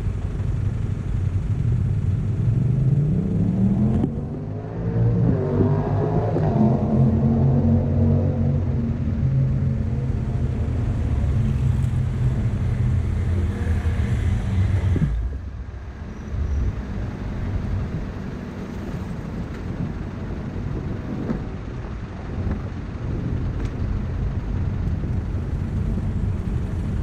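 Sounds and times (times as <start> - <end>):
traffic noise: 0.0 - 27.0
vehicle engine running close: 0.0 - 27.0.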